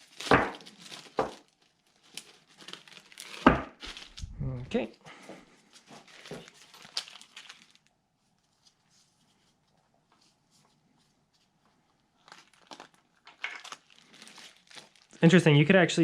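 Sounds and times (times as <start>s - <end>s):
plastic bag crinkling: 0.0s - 4.9s, 5.7s - 8.8s, 11.9s - 15.7s.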